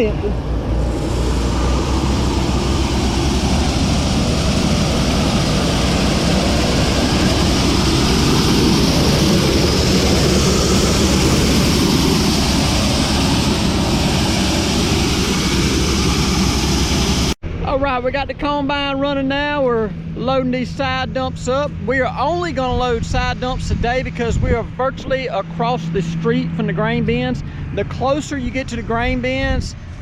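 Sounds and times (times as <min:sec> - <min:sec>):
grain unloading machinery: 0:00.8 - 0:17.3.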